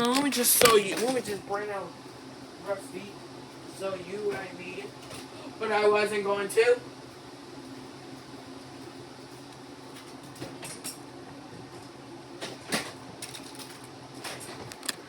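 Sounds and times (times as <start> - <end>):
toys clicking and knocking: 0.0 - 1.2.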